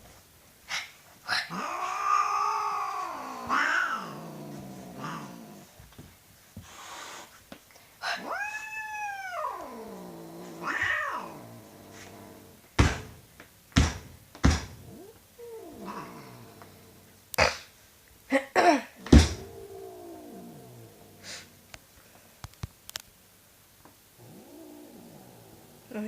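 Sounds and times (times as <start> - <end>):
cat growling and yowling: 1.3 - 5.7, 8.0 - 12.6, 14.8 - 17.2, 19.0 - 21.7, 24.2 - 26.0
sharp knocks: 12.8 - 13.2, 13.8 - 14.8, 19.0 - 19.5.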